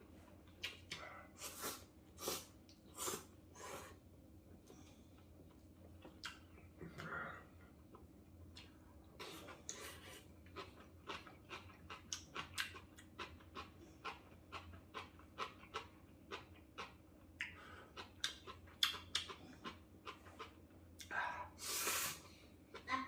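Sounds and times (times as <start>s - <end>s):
chewing mouth clicks and smacks: 0.4s - 1.0s, 4.8s - 7.1s, 10.4s - 21.1s.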